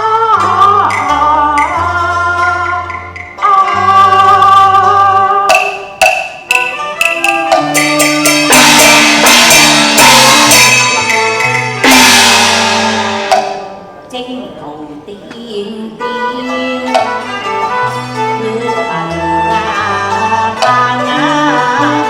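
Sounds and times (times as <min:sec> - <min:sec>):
live band playing: 0:00.0 - 0:14.1, 0:15.9 - 0:22.0
sharp percussion strikes: 0:05.5 - 0:14.0.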